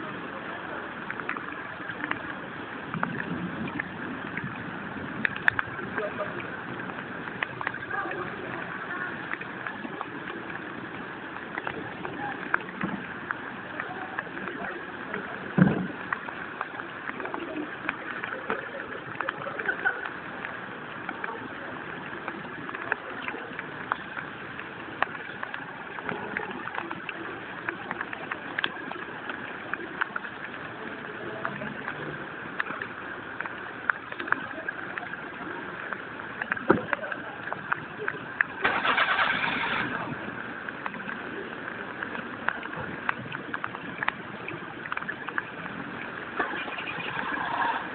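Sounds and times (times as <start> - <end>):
heavy rain hissing: 0.0 - 47.9
rain drips and splashes: 0.0 - 47.9.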